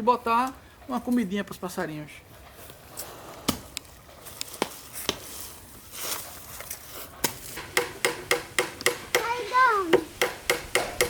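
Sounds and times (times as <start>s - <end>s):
soil scraping: 2.6s - 7.8s
digging tool striking ground: 7.2s - 11.0s.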